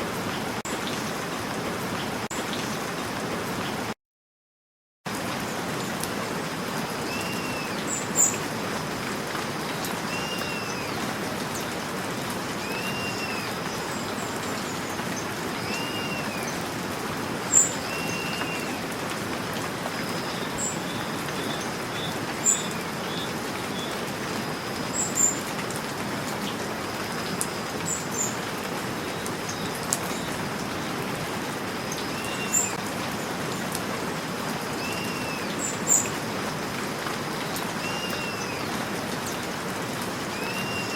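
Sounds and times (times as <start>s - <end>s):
steady rain: 0.0s - 4.0s, 5.1s - 40.9s
bird calling: 10.1s - 11.0s, 12.6s - 14.8s, 15.6s - 16.6s, 17.5s - 18.9s, 31.9s - 32.8s, 34.8s - 36.1s, 37.8s - 38.7s, 40.3s - 40.9s.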